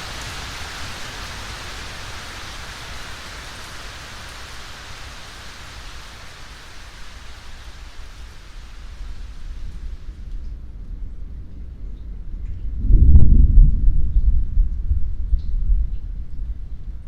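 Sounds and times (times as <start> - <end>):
rain hiss: 0.0 - 12.8
low rumble of thunder: 8.9 - 17.0.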